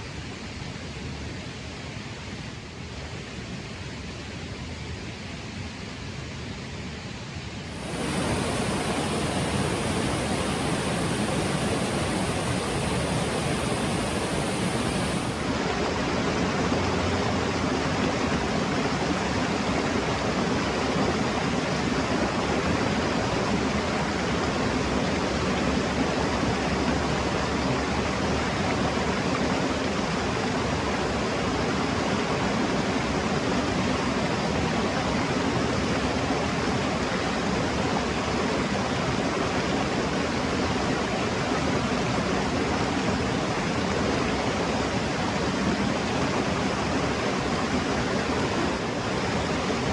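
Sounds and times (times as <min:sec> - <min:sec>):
mountain stream rushing: 0:07.7 - 0:21.6.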